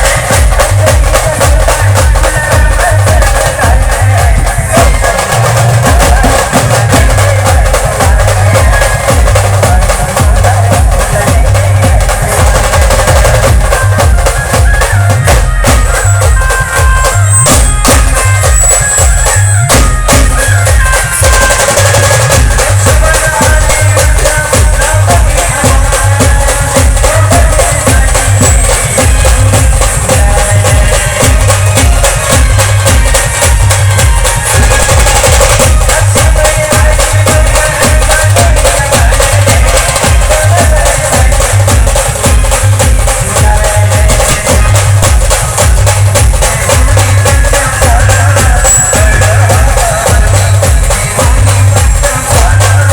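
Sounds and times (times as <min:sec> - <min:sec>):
band playing loud music: 0:00.0 - 0:52.9
heavy steady drum beat: 0:00.0 - 0:52.9.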